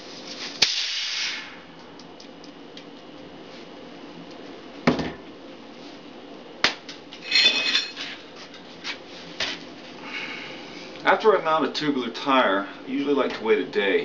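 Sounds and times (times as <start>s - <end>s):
air hiss with whistle: 0.6s - 1.6s.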